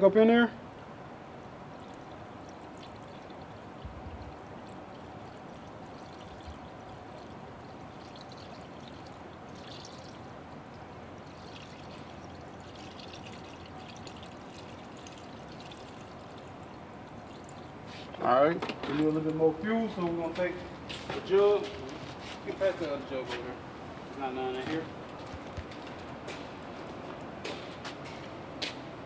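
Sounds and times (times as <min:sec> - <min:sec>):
fuel pouring from a jug: 0:01.7 - 0:18.2.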